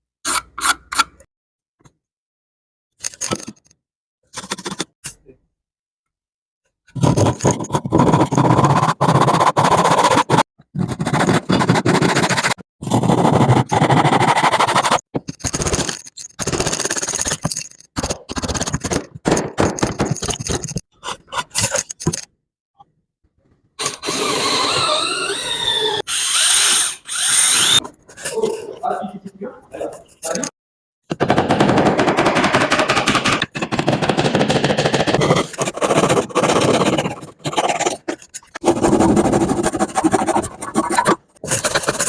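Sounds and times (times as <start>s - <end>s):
woodworking tool scraping: 35.1s - 42.0s.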